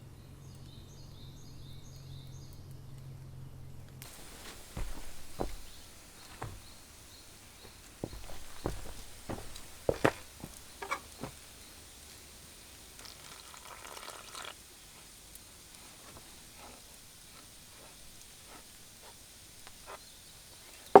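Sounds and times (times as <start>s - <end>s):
soft rustle: 4.0s - 12.3s, 14.8s - 21.0s.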